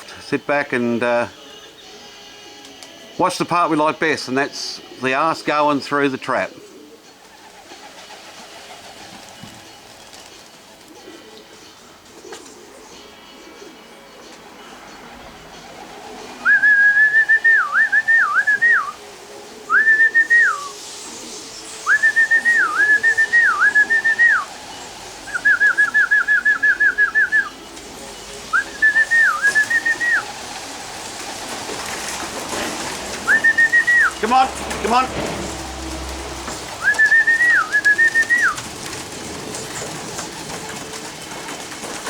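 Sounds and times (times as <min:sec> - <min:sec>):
faint pigeon sounds: 0:06.4 - 0:42.0
person whistling: 0:16.4 - 0:19.0, 0:19.7 - 0:20.8, 0:21.9 - 0:24.5, 0:25.3 - 0:27.6, 0:28.5 - 0:30.2, 0:33.2 - 0:34.4, 0:36.8 - 0:38.6.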